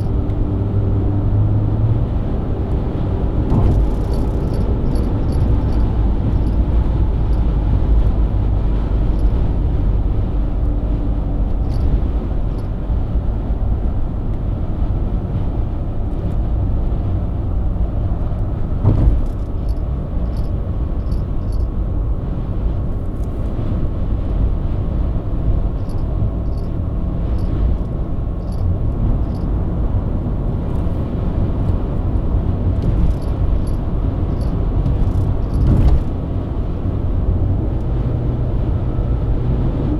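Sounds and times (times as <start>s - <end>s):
car engine cruising: 0.0s - 39.9s
tyre and road rumble: 0.0s - 39.9s
short thump: 3.4s - 6.7s, 18.8s - 19.6s, 34.9s - 36.2s.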